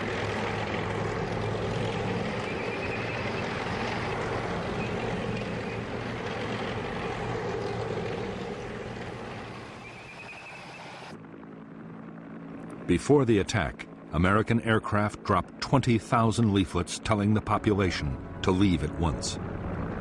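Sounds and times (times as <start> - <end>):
heavy engine rumbling: 0.0 - 11.1.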